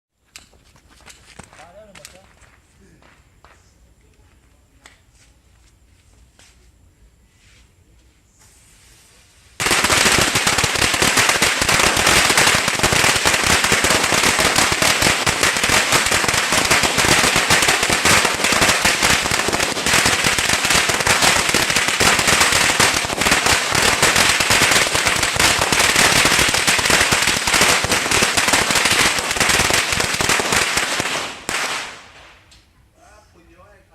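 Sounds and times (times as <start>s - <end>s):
firecrackers crackling: 0.2s - 3.7s, 9.1s - 32.7s.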